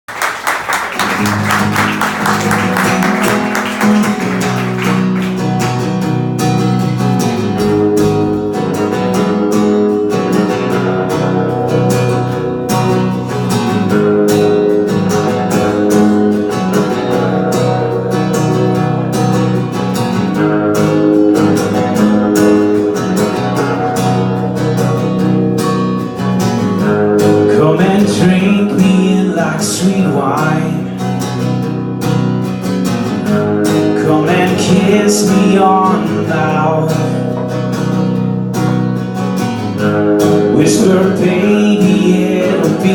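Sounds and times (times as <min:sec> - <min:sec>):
audience applause: 0:00.1 - 0:06.0
strummed acoustic guitar: 0:01.0 - 0:42.9.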